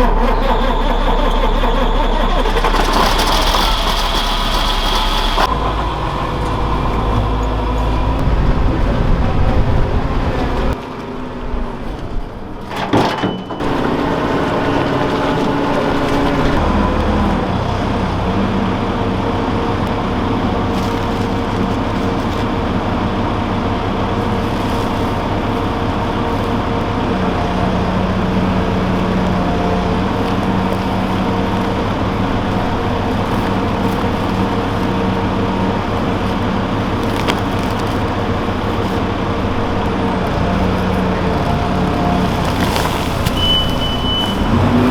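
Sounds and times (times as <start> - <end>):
tractor engine chugging: 0.0 - 10.8, 12.7 - 44.9.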